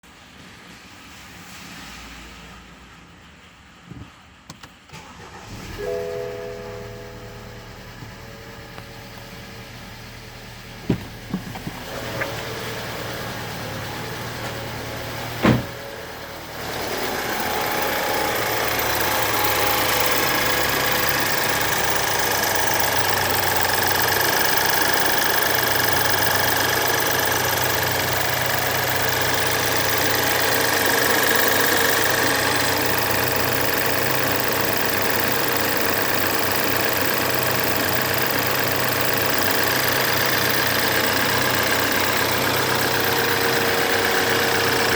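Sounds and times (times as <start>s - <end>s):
car engine idling: 2.8s - 44.9s
sharp engine knock: 10.8s - 12.4s
timing chain rattle: 16.8s - 44.9s.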